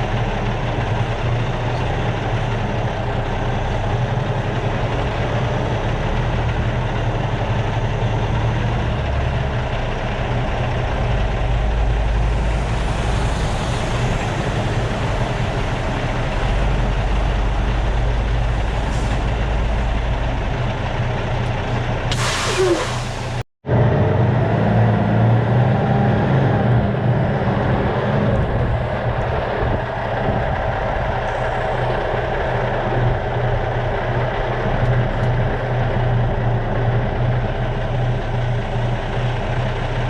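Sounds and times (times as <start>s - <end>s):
truck diesel engine running: 0.0s - 40.0s
air brake hiss: 22.1s - 23.4s.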